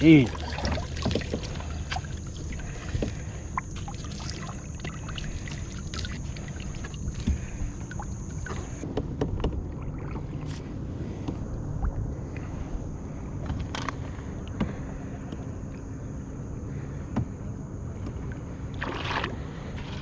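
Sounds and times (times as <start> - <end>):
water against kayak hull: 0.0 - 12.5, 16.8 - 20.0.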